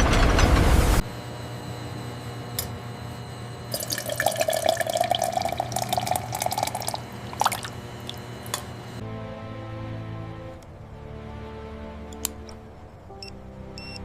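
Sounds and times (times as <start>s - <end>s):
low steady hum: 3.3s - 9.0s
liquid dripping and trickling: 3.8s - 8.6s.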